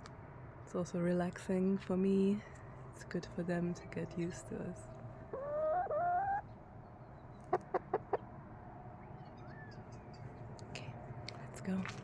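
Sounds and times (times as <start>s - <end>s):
chicken calling: 5.3s - 6.4s
chicken clucking: 5.3s - 6.4s, 7.5s - 8.2s.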